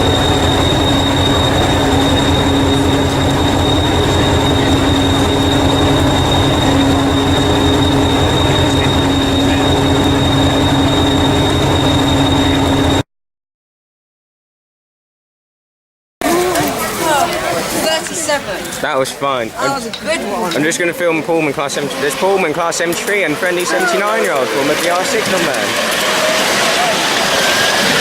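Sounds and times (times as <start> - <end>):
high whine: 0.0 - 13.0, 20.6 - 28.0
miniature train rumbling on track: 0.0 - 13.0, 16.2 - 28.0.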